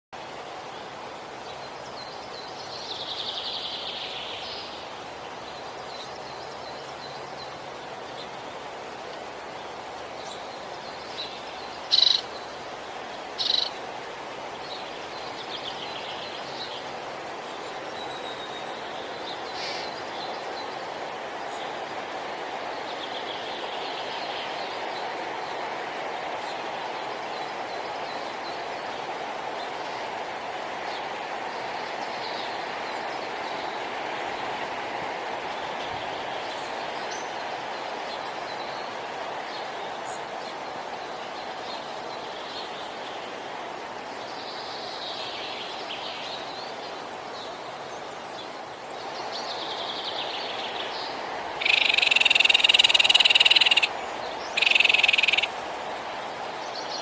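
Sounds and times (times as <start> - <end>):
steady background hiss: 0.2 - 57.0
bird singing warbled phrases: 9.6 - 13.9, 47.4 - 55.6.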